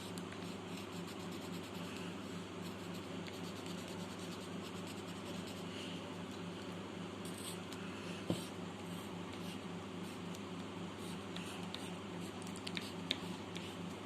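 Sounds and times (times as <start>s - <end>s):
steady low hum: 0.0s - 14.0s
pencil scratching on paper: 0.4s - 2.0s, 2.6s - 5.7s.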